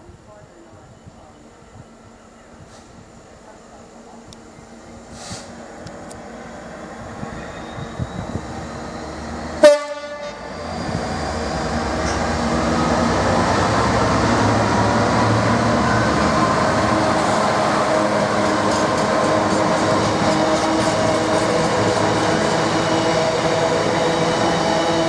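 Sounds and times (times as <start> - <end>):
train rumbling past: 0.0 - 25.0
train horn blast: 9.6 - 10.5.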